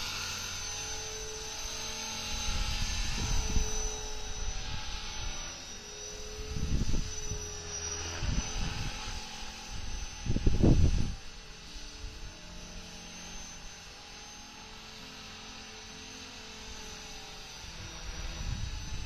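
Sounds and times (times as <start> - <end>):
model helicopter motor whine: 0.0 - 19.0
wind gusts on microphone: 6.4 - 7.4, 8.2 - 11.2, 17.8 - 19.0.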